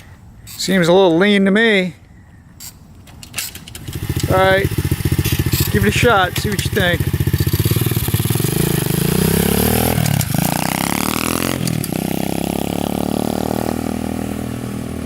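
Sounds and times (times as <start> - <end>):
motorbike engine accelerating: 3.8 - 15.0.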